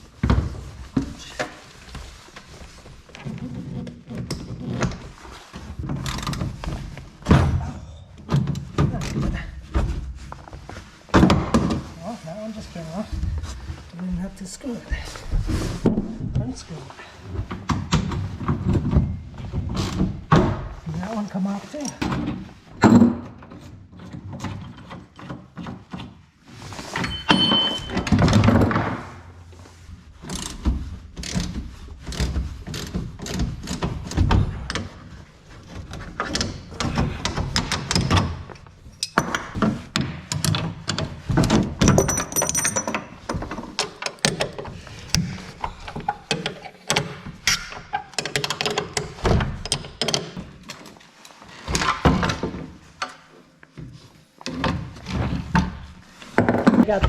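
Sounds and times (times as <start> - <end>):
metal hardware clunks and rattles: 27.0 - 29.4, 32.2 - 51.0.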